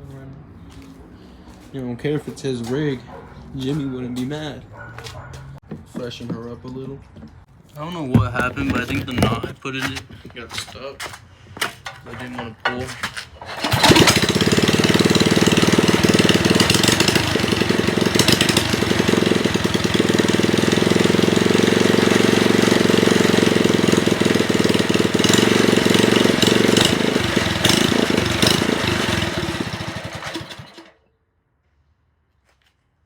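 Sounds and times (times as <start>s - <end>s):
small gas engine idling: 13.4s - 31.0s.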